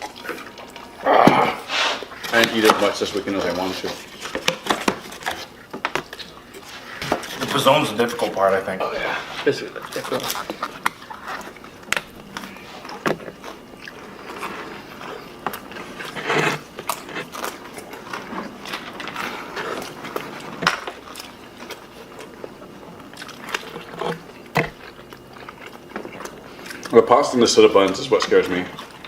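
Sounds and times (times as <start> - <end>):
people chewing pizza: 0.0 - 29.0.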